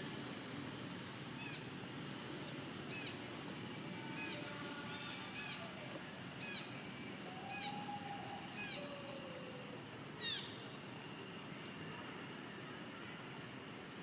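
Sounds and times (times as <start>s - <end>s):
monkey drawn-out lower calls: 6.4s - 10.7s.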